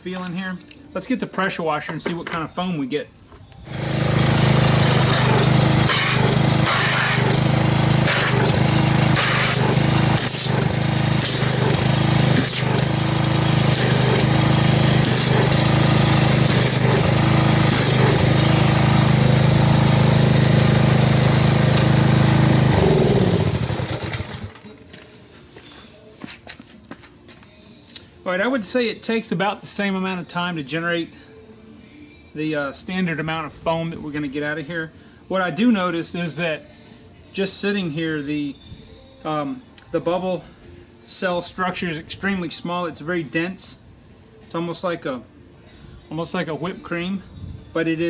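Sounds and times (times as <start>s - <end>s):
pressure washer motor hum: 3.6s - 24.7s.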